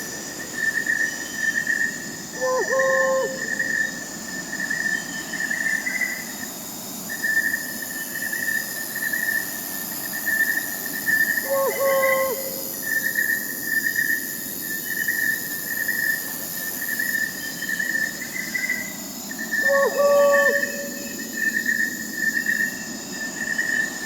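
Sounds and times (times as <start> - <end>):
crickets trilling: 0.0 - 24.0
owl hooting: 2.4 - 3.8, 11.4 - 12.8, 19.6 - 21.3
insect buzzing: 10.0 - 23.9.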